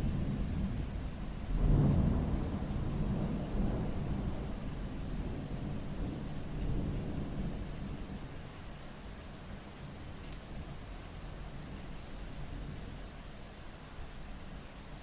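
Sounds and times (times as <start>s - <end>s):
thunder rumbling: 0.0s - 7.8s
steady rain: 0.0s - 15.0s.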